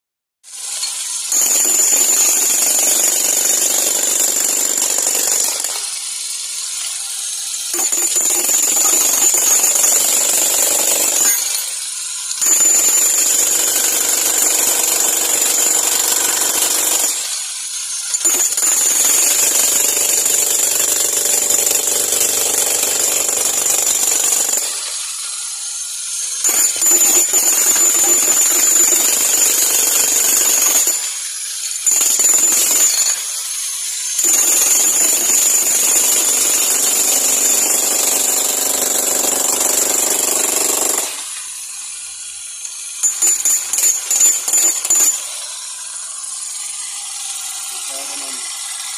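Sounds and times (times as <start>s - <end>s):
demolition hammer pounding: 7.8s - 11.6s, 34.6s - 41.2s.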